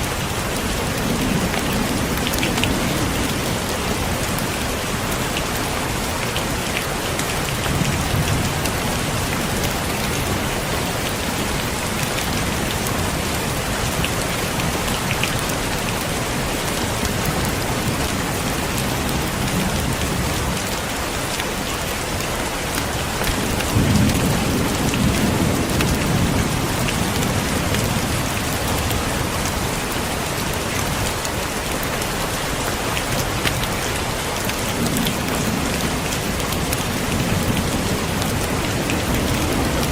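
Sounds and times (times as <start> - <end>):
heavy rain falling: 0.0 - 39.9
thunder rumbling: 23.1 - 29.9.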